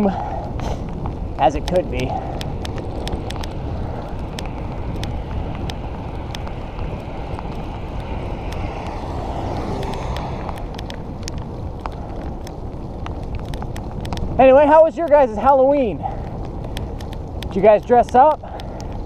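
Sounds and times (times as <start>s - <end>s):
wind rushing over microphone: 0.0s - 19.0s
sharp ticks: 2.4s - 14.4s, 16.3s - 19.0s
tyre hiss on wet road: 5.4s - 10.8s.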